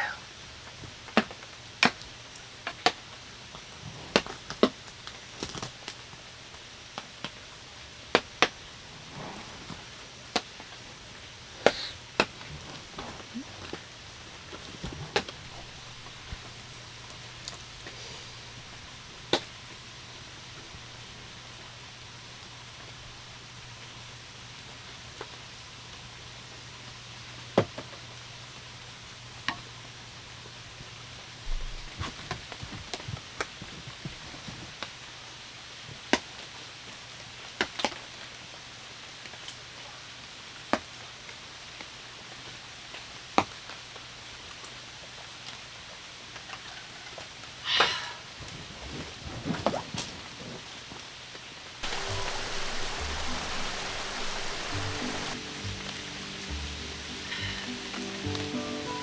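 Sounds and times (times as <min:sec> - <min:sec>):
raindrops tapping on tent fabric: 0:00.6 - 0:23.0, 0:30.8 - 0:38.4, 0:40.5 - 0:44.8, 0:48.4 - 0:59.0.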